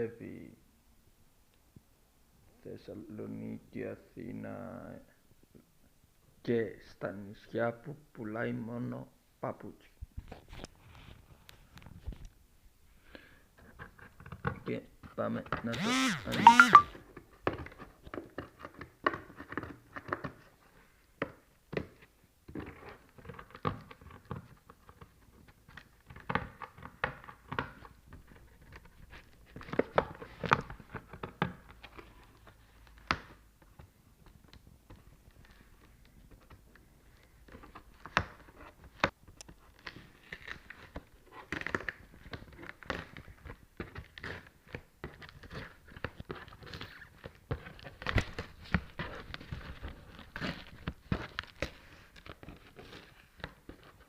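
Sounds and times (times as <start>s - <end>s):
paper crinkling and rustling: 34.2s - 54.0s.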